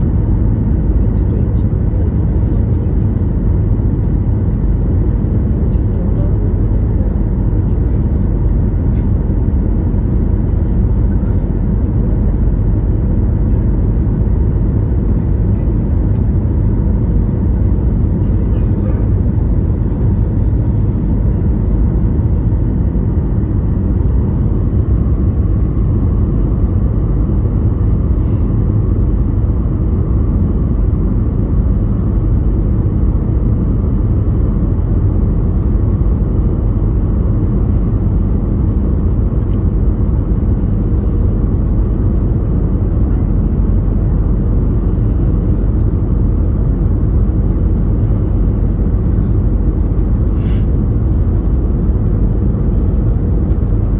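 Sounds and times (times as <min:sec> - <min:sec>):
road vehicle rumble: 0:00.0 - 0:53.9.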